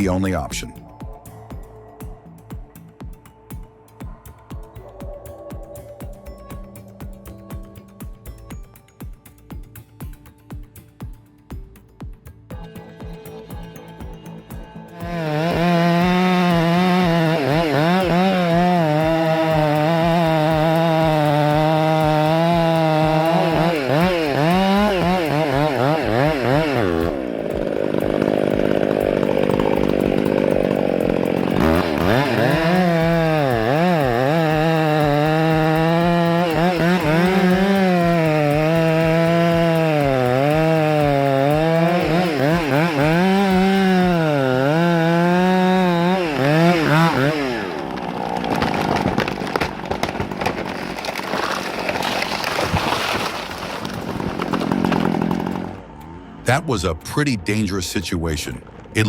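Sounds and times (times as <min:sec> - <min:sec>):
chainsaw cutting tree trunk: 0:12.5 - 0:56.2.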